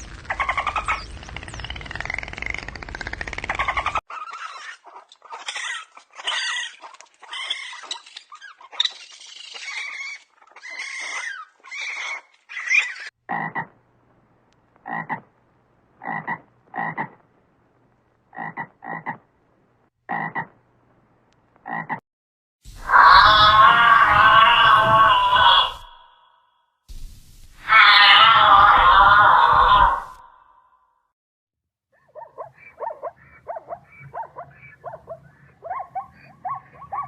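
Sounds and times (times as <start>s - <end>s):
frogs croaking: 14.8s - 15.3s, 16.0s - 17.2s, 18.3s - 19.3s.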